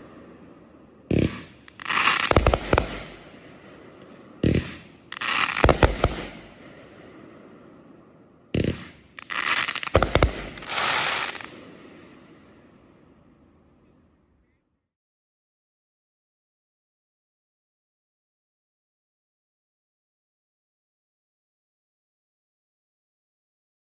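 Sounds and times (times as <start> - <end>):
firework bangs and crackling: 0.0 - 7.6, 8.2 - 13.3
firework launch thumps: 1.1 - 3.3, 4.4 - 6.6, 8.6 - 11.6.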